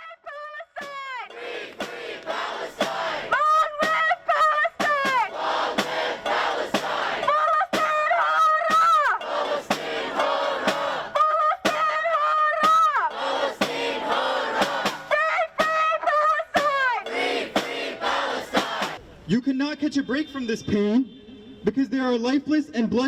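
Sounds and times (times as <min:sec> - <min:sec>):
crowd chanting: 0:00.8 - 0:15.8, 0:16.5 - 0:19.0
sharp rhythmic beats: 0:00.8 - 0:19.0.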